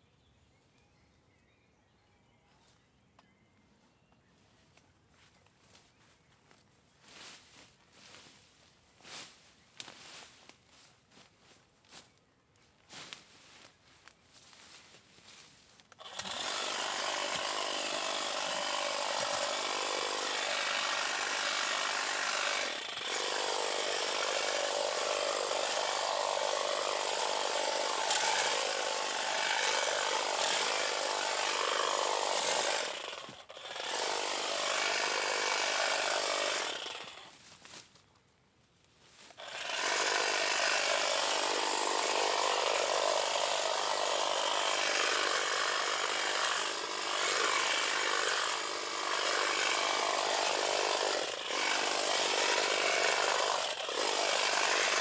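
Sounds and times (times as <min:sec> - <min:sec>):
power cutting tool running: 0:16.0 - 0:37.3, 0:39.4 - 0:55.0.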